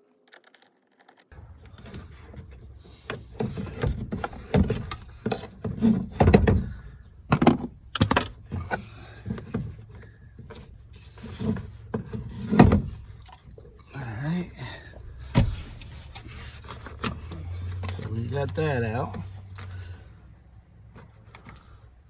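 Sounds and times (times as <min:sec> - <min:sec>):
plastic and metal parts rattling: 0:00.0 - 0:13.8.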